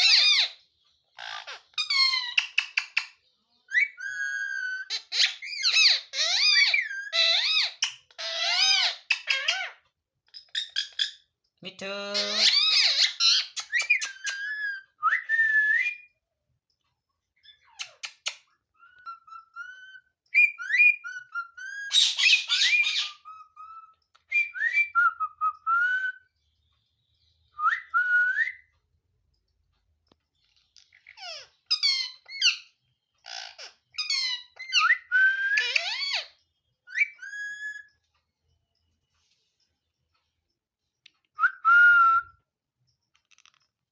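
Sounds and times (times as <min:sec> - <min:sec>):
parrot whistling and squawking: 0:00.0 - 0:00.6, 0:01.2 - 0:03.0, 0:03.7 - 0:09.8, 0:12.1 - 0:16.1, 0:17.5 - 0:26.2, 0:30.8 - 0:32.7, 0:33.3 - 0:37.9.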